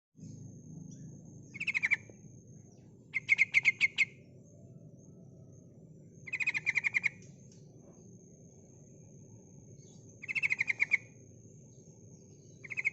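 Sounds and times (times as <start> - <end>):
bulbul chattering call: 0.3 - 2.1, 3.1 - 4.2, 6.3 - 7.3, 10.2 - 11.1, 12.6 - 12.9.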